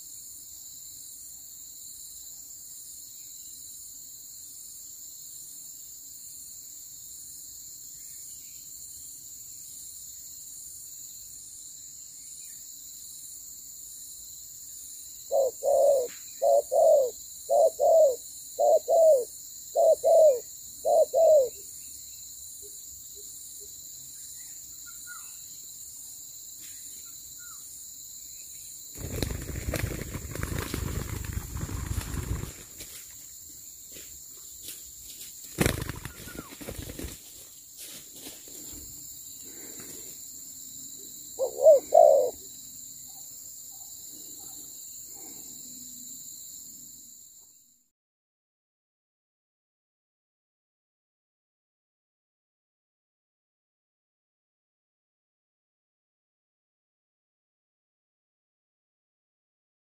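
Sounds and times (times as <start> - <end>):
dove cooing: 15.3 - 21.6, 35.6 - 37.0, 41.4 - 42.5
rustling scuffling noise: 29.6 - 33.3, 33.9 - 38.9.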